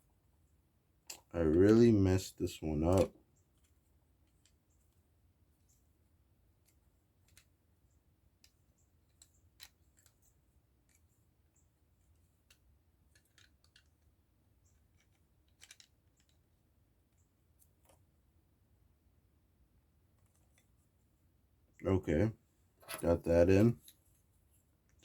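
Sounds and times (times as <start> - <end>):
plastic parts clicking: 12.5 - 14.1, 14.9 - 16.4.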